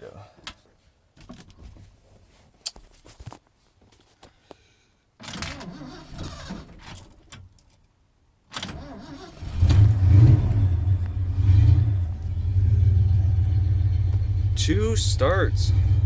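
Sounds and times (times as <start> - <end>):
truck engine running: 9.6 - 16.0.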